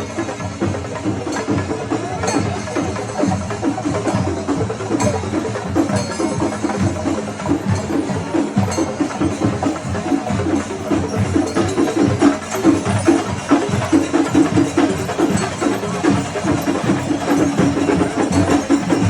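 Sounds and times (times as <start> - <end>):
percussion ensemble drumming: 0.0 - 19.0.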